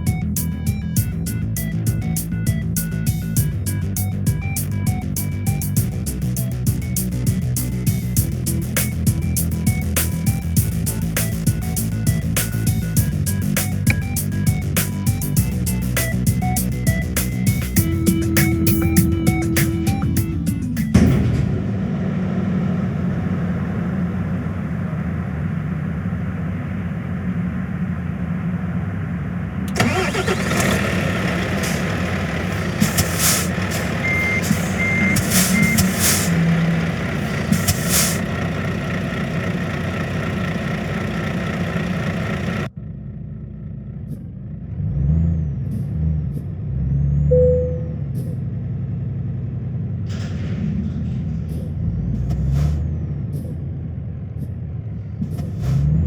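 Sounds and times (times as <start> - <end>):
truck engine running: 0.0 - 56.0
short high beeps: 17.8 - 21.0, 33.2 - 36.4, 47.3 - 48.0.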